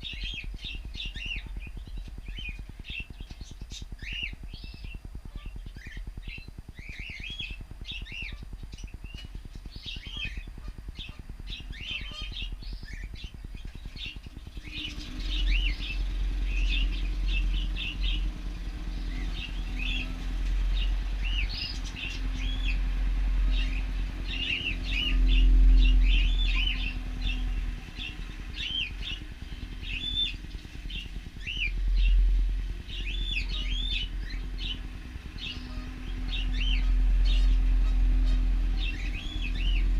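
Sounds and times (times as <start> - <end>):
cockatiels chirping: 0.0 - 16.0
low engine-like drone: 0.0 - 39.9.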